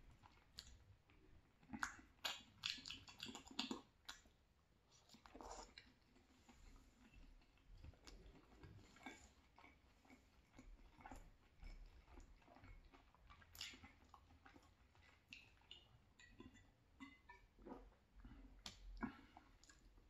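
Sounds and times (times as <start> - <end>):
person chewing pasta: 0.0 - 20.0
person drinking: 5.2 - 10.3.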